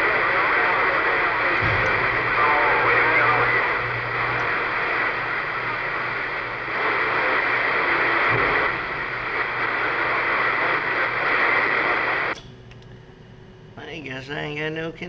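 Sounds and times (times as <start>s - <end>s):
radio static hiss: 0.0s - 12.4s.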